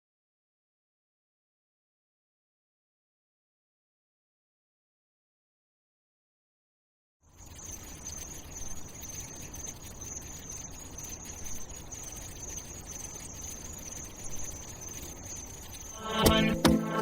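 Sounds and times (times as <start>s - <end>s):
low background noise: 7.3s - 17.0s
steady high-pitched whine: 7.3s - 17.0s.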